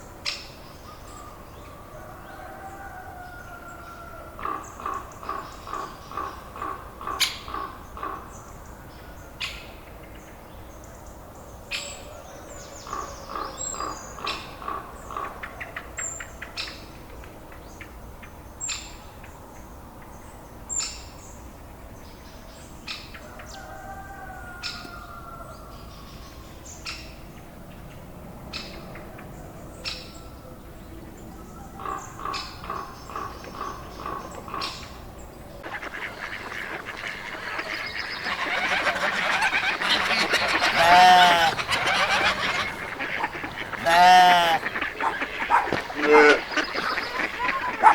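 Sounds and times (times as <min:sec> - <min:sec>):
bird calls: 0:31.5 - 0:47.9.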